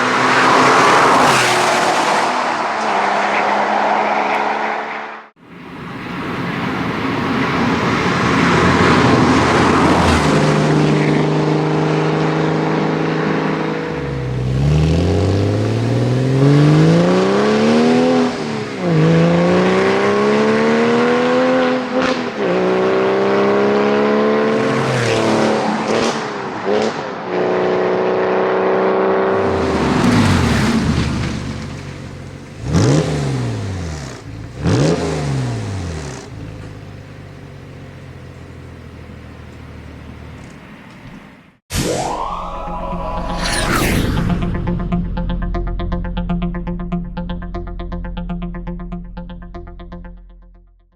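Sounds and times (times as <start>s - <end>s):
car engine accelerating hard: 0.0s - 40.5s.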